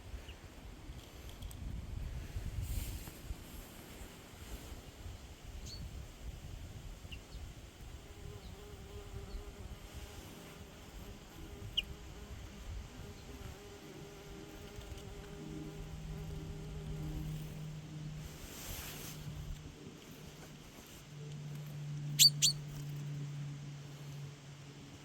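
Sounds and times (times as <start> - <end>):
flying insect buzzing: 7.7 - 20.7.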